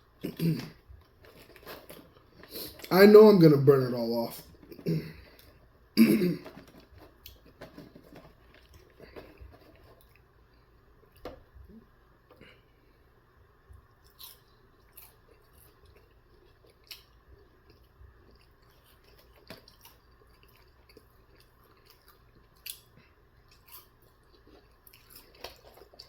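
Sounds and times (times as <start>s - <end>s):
close chewing: 13.9s - 26.0s.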